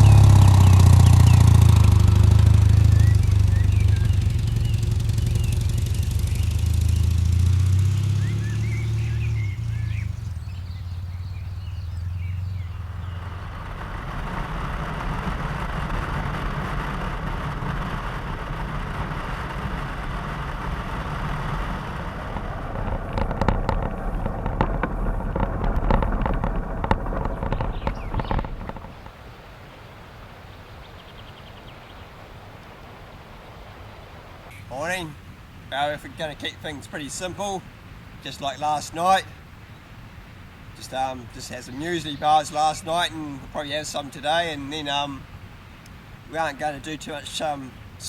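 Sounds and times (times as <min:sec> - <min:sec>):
motorcycle engine running: 0:00.0 - 0:29.2
steady rushing noise: 0:00.0 - 0:48.0.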